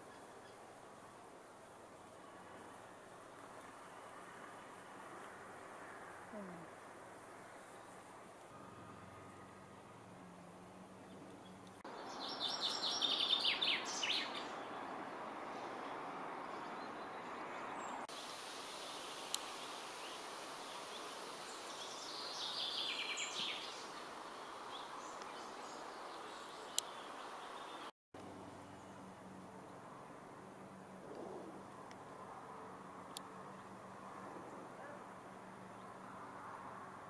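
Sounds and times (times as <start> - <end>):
songbird singing: 0.0 - 1.2, 5.2 - 18.3, 19.2 - 29.8
outdoor hiss: 18.0 - 27.9.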